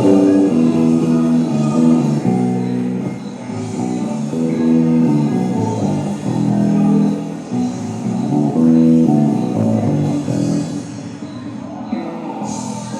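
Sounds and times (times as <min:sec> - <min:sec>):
electric bass plucked notes: 0:00.0 - 0:11.0.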